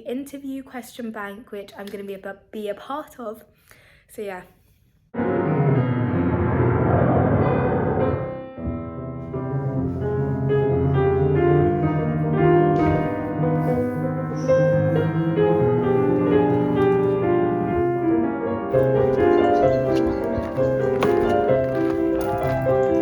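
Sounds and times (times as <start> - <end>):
piano melody: 5.2 - 23.0.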